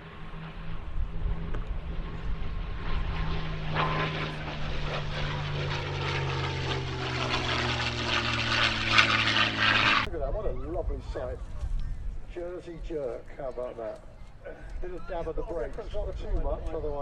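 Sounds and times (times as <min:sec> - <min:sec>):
propeller plane engine: 0:00.0 - 0:10.1.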